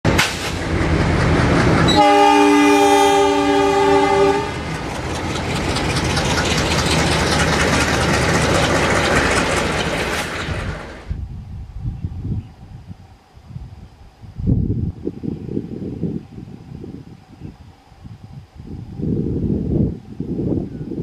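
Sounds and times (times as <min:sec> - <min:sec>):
fast train rushing: 0:00.0 - 0:20.6
train horn chord: 0:01.9 - 0:04.6
rapid wheel clatter: 0:04.6 - 0:11.0.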